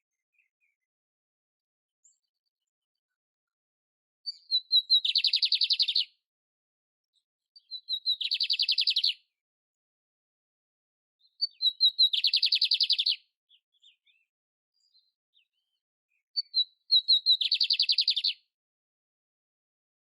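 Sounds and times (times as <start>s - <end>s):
songbird chirping and trilling: 0.1s - 1.0s, 2.0s - 3.6s, 4.2s - 6.2s, 7.1s - 9.4s, 11.2s - 18.6s.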